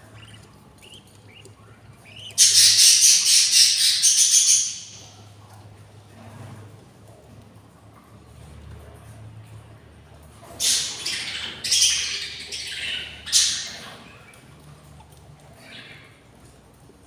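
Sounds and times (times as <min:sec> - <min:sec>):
bird chicks squawking: 0:00.0 - 0:05.4, 0:10.6 - 0:14.6.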